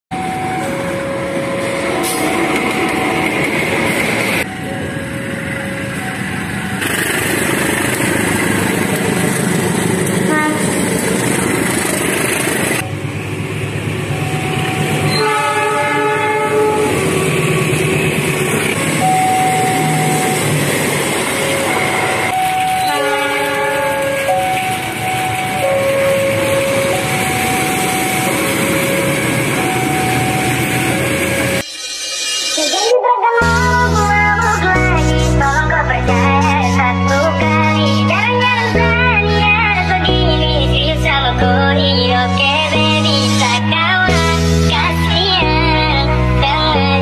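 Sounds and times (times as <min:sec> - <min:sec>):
train running on rails: 0:00.1 - 0:47.0
locomotive horn: 0:10.1 - 0:11.0, 0:14.9 - 0:17.4, 0:21.4 - 0:24.4.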